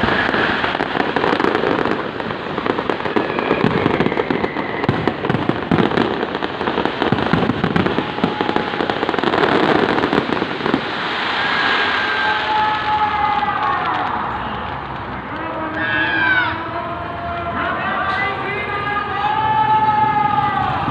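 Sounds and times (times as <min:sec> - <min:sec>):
rushing hiss: 0:00.0 - 0:13.7
fireworks bangs and crackles: 0:00.0 - 0:20.9.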